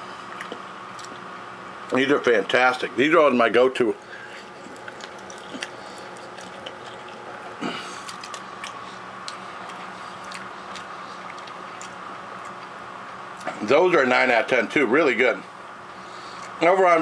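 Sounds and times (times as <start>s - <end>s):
low room hum: 0.0s - 17.0s
chewing and wet mouth clicks: 0.3s - 1.3s, 4.6s - 7.2s, 8.0s - 12.7s.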